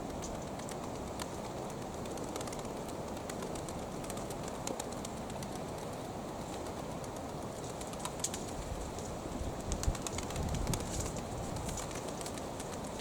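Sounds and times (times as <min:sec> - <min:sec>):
pigeon clicks and flutters: 0:00.0 - 0:13.0
wind buffeting microphone: 0:05.8 - 0:13.0.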